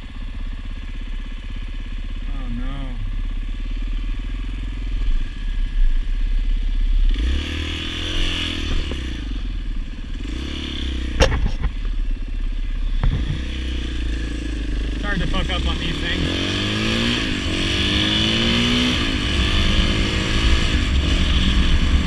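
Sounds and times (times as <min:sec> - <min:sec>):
dirt bike engine idling and revving: 0:00.0 - 0:22.0
sharp click: 0:11.2 - 0:11.8.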